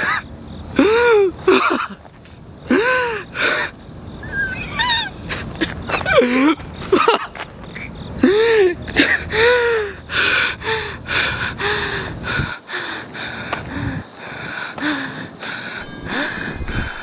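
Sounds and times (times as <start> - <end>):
man gasping and whimpering: 0.8 - 1.5, 8.2 - 17.0.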